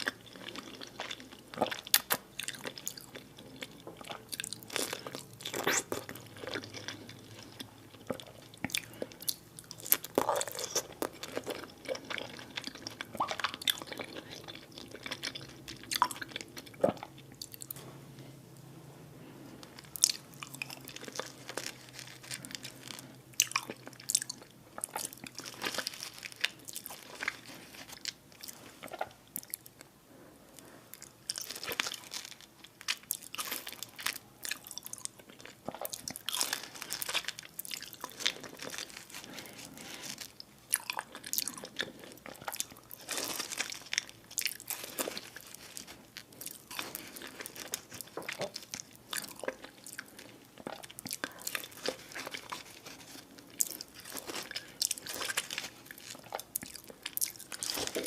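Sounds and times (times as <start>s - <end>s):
biting and chewing: 31.0s - 58.0s.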